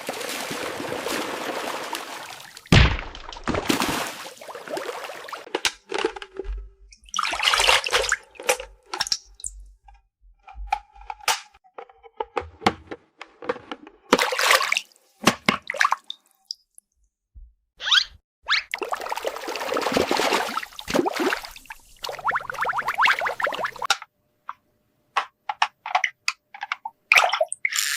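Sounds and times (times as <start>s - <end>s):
water swishing and splashing: 0.0s - 10.0s, 13.8s - 16.6s, 18.7s - 23.9s
running water: 6.9s - 9.7s, 18.8s - 23.9s.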